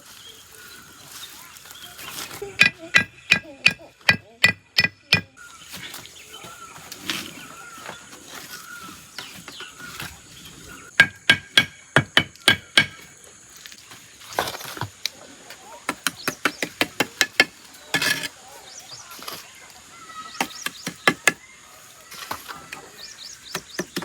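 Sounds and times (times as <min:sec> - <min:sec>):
metal tool striking brick: 0:02.6 - 0:05.3, 0:11.0 - 0:13.0.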